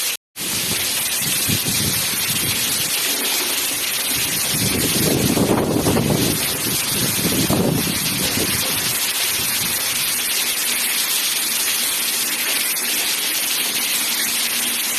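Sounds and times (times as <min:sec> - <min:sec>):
heavy rain pouring: 0:00.0 - 0:14.9
wind buffeting microphone: 0:00.4 - 0:10.2.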